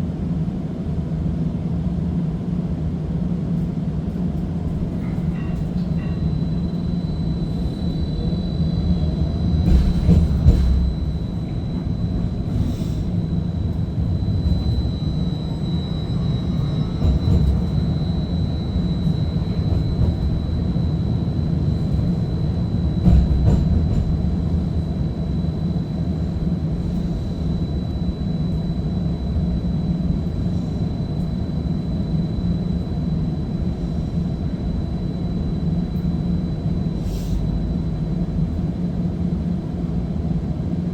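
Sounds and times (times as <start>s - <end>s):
streetcar rumble and whine: 0.0s - 40.9s
streetcar thumps: 4.1s - 28.0s.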